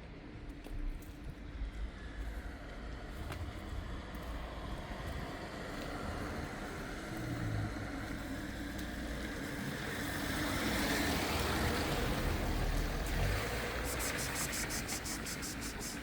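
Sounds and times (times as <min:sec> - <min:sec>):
street traffic rumble: 0:00.1 - 0:16.0
vehicle passing close by: 0:10.1 - 0:16.0.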